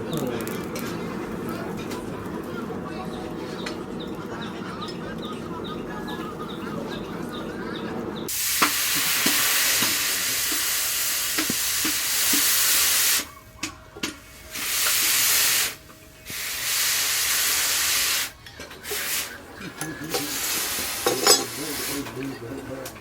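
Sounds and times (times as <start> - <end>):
steel grinding hiss: 8.3 - 23.0.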